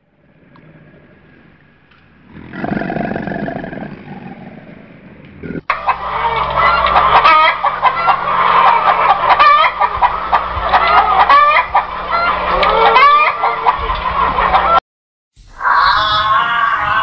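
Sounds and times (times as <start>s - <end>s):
hens clucking: 5.2s - 14.8s.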